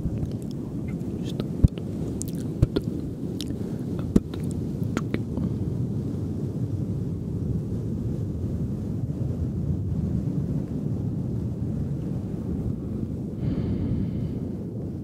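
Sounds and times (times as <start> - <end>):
low rumbling noise: 0.0 - 15.0
wet mouth clicks: 0.1 - 5.3.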